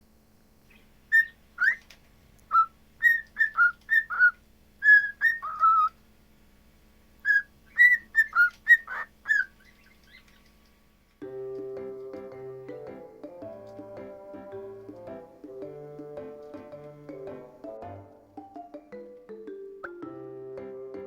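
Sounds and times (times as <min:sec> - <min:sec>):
cockatiel whistling: 0:00.7 - 0:06.0, 0:07.2 - 0:10.4.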